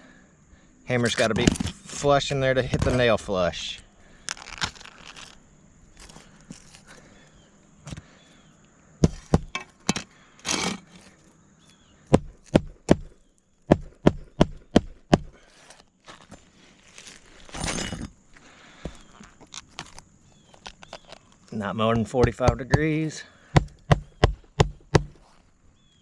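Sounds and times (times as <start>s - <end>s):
hammer striking roofing nails: 9.0s - 9.7s, 12.1s - 13.1s, 13.7s - 15.4s, 22.0s - 25.2s
scraping rustles: 9.6s - 11.3s, 15.4s - 21.6s.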